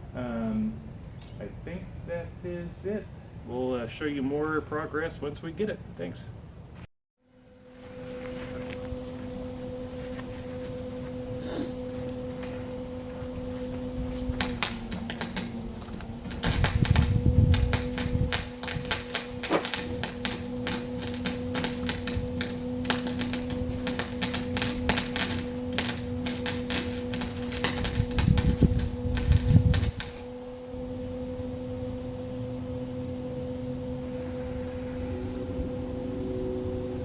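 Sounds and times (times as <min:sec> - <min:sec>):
electrical hum: 0:00.0 - 0:37.0
welding arc crackling: 0:07.6 - 0:32.7
heavy low rumble: 0:07.9 - 0:37.0.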